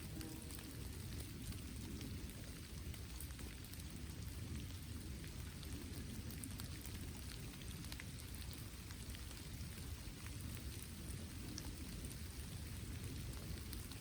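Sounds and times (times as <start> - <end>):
raindrops ticking: 0.0 - 14.0
steady rain falling: 0.0 - 14.0.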